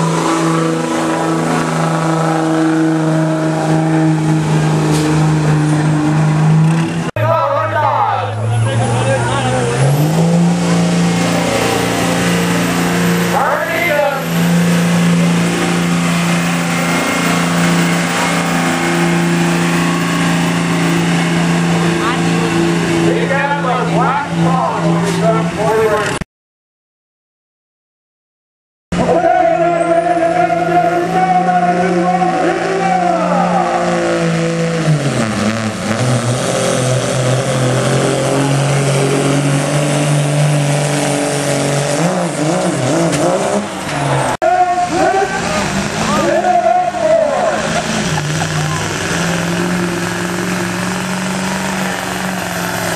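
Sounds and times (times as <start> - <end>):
diesel truck engine at high revs: 0.0 - 26.2, 29.0 - 52.9.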